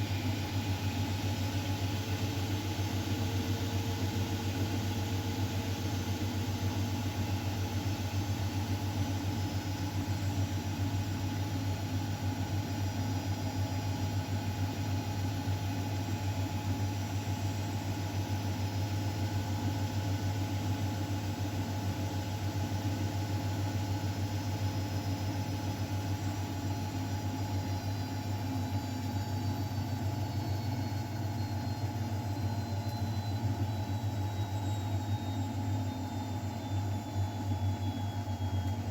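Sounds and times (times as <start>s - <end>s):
washing machine hum: 0.0s - 38.9s.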